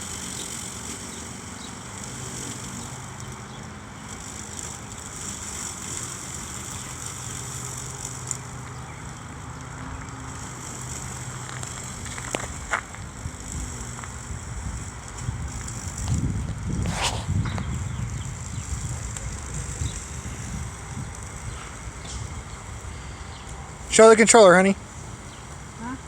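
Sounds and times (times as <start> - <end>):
electric mower humming: 0.0 - 26.0.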